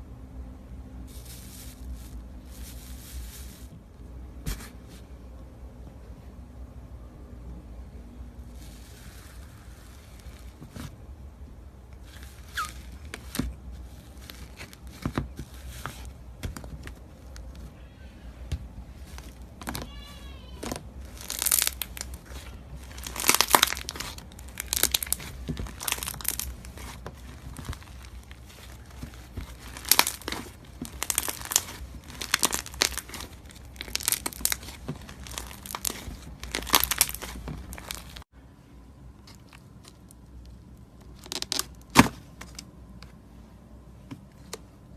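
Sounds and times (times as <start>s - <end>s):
slime squished by hand: 19.1s - 38.2s.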